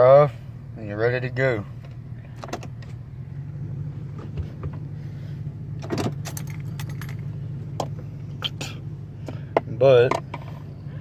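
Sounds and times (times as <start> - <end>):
truck engine idling: 0.0 - 11.0
light clicks and jingles: 6.1 - 7.9.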